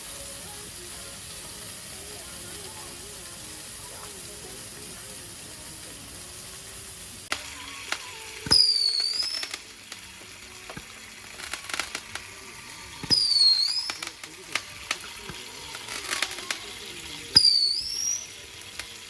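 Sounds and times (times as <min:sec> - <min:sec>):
food sizzling in a pan: 0:00.0 - 0:19.0
utensils clicking against pan: 0:00.0 - 0:19.0
high whistle-like squeal: 0:07.9 - 0:09.6, 0:12.9 - 0:14.2, 0:17.3 - 0:18.5.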